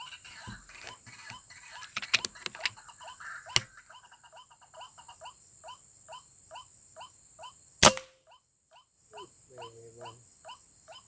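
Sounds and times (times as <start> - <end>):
loud crack: 7.8 - 8.2
sharp click: 7.8 - 8.2.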